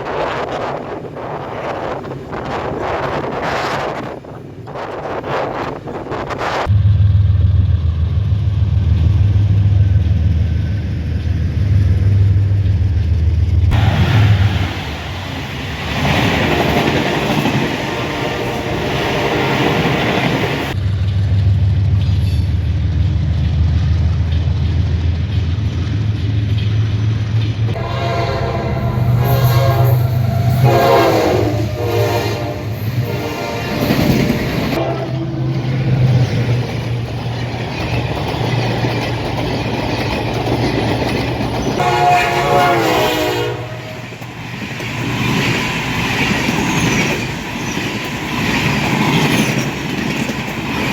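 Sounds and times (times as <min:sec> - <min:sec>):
locomotive hum: 0:00.0 - 0:50.9
train horn blasts: 0:16.4 - 0:20.3, 0:27.7 - 0:35.7, 0:41.8 - 0:44.2
wheels clicking over rail joints: 0:33.8 - 0:41.8, 0:44.1 - 0:50.9.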